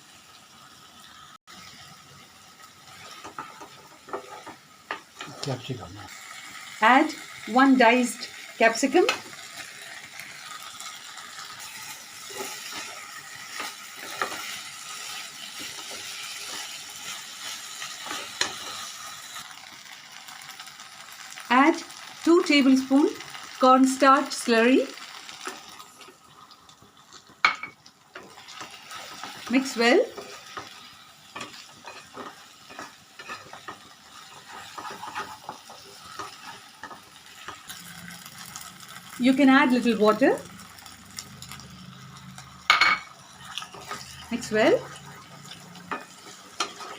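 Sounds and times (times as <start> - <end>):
food sizzling in oil: 0.0 - 46.9
spatula scraping and tapping pot: 3.0 - 5.4, 30.2 - 37.7, 45.5 - 46.9
utensil scraping a pot: 34.3 - 36.7.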